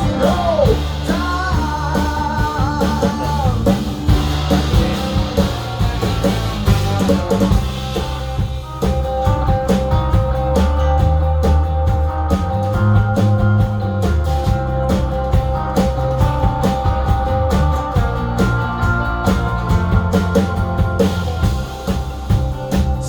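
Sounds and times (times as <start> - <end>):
bass: 0.0 - 23.0
drum kit: 0.0 - 23.0
electric guitar: 0.0 - 23.0.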